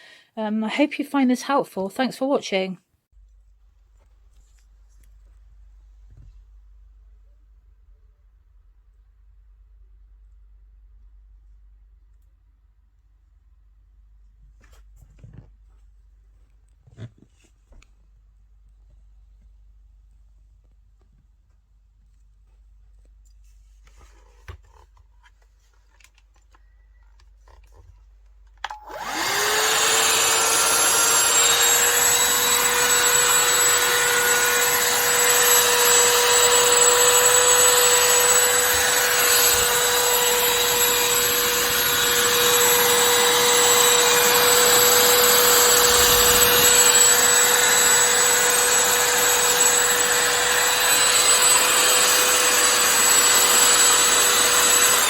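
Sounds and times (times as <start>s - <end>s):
vacuum motor whine: 28.6s - 55.0s.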